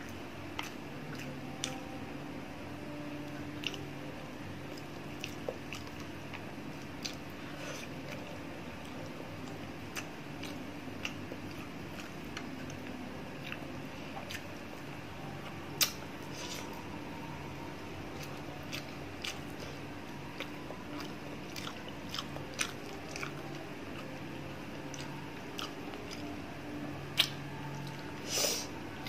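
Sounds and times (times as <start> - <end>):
person chewing food: 0.0 - 1.9, 3.2 - 3.9, 4.6 - 17.0, 18.1 - 28.7
low steady hum: 0.0 - 29.0.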